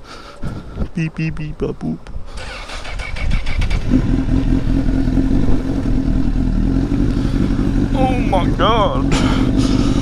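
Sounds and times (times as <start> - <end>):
motorcycle engine running: 2.4 - 10.0.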